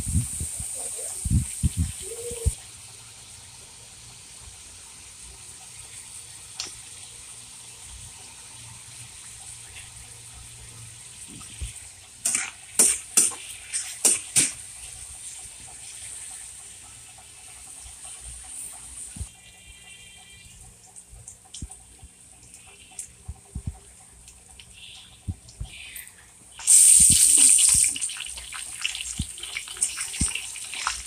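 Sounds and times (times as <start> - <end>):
meat sizzling in a wok: 0.0 - 19.6, 26.6 - 31.0.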